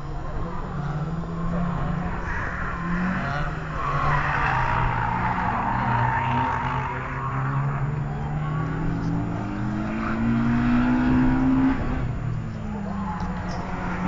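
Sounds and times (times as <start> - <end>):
race car engine accelerating: 0.0 - 14.0.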